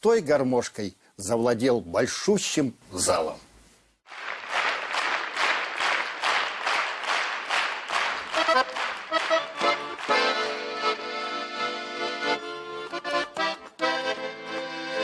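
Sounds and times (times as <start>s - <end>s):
audience clapping in time: 4.1s - 11.4s
accordion playing: 8.0s - 15.0s.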